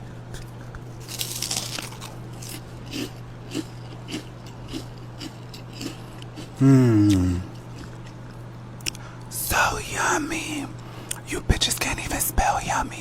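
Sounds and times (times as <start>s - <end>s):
person chewing crunchy fries: 0.0s - 9.1s
steady low hum: 0.0s - 13.0s.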